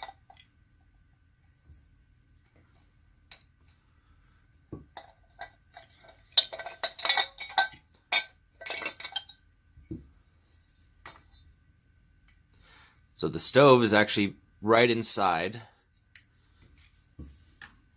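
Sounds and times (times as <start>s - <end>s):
metal parts clinking and rattling: 4.9s - 9.4s.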